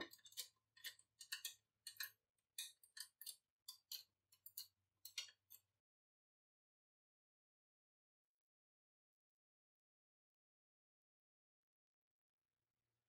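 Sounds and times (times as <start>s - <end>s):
light clicks and taps of small parts: 0.0s - 5.7s.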